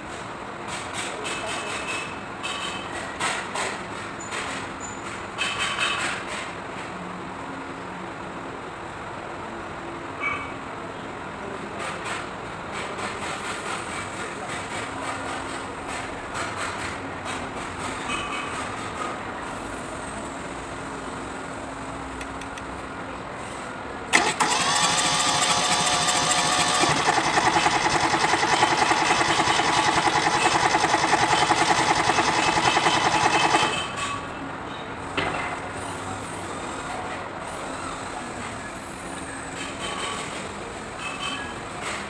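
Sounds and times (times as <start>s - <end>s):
diesel engine cranking: 24.1s - 34.3s.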